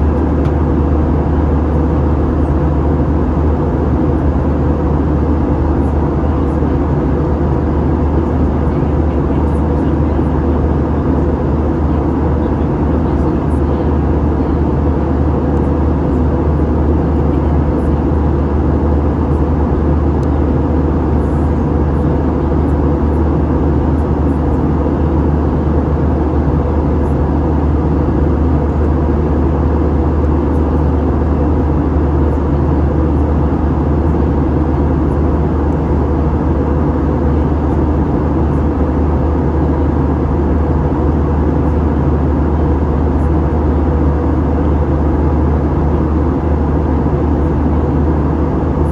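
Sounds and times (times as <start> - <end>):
airliner cabin engine drone: 0.0 - 48.9.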